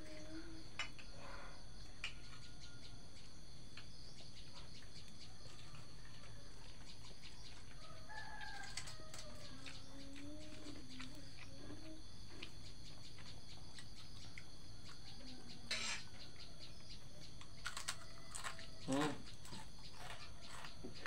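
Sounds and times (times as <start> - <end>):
insects droning: 0.0 - 21.0
rooster crowing: 1.8 - 3.2, 7.7 - 9.8, 17.6 - 19.2.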